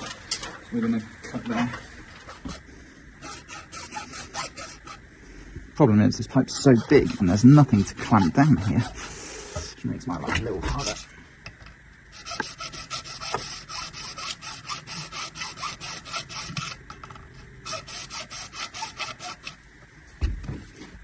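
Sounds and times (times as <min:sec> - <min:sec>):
hand saw cutting plastic pipe: 0:03.2 - 0:05.0, 0:06.5 - 0:09.7, 0:12.2 - 0:16.8, 0:17.6 - 0:19.6.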